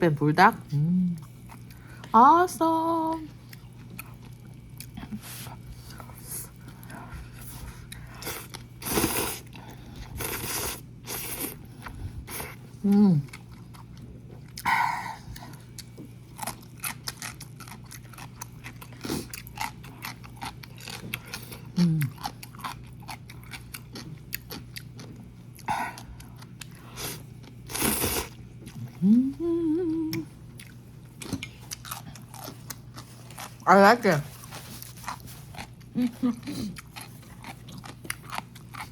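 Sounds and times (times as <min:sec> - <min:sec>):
person chewing noodles: 0:01.1 - 0:02.1, 0:03.4 - 0:33.6, 0:34.3 - 0:38.9
person humming mmm: 0:12.8 - 0:13.4, 0:21.7 - 0:22.2, 0:28.7 - 0:30.4.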